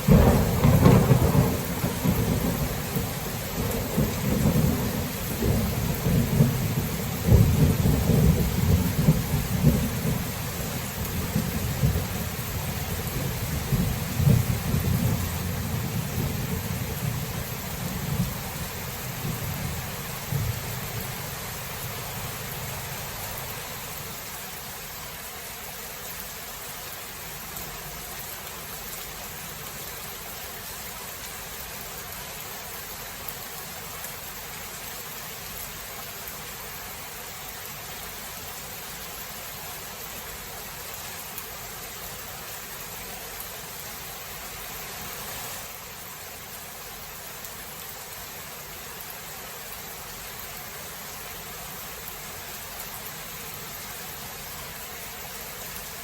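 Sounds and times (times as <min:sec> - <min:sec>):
rain hiss: 0:00.0 - 0:56.0
thunder rumbling: 0:00.1 - 0:23.9.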